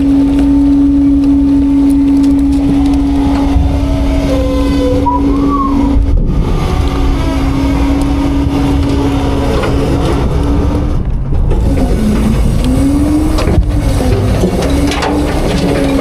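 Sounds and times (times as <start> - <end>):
garbage truck engine rumble: 0.0 - 16.0
hydraulic whine: 0.0 - 16.0.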